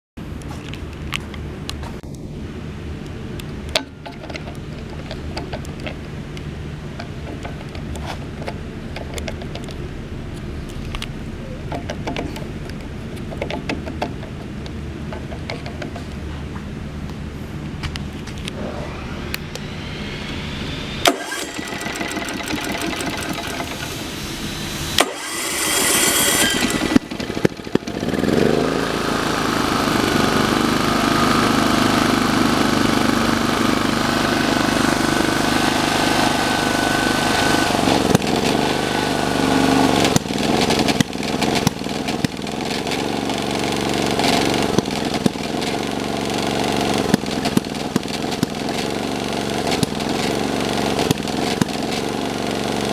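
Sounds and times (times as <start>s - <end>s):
engine cranking and running: 17.9s - 52.9s.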